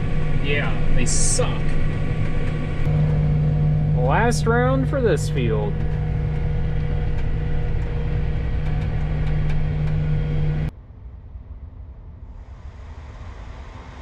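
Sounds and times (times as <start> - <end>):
harvester drone from cab: 0.0 - 10.7
low rumble: 0.0 - 14.0.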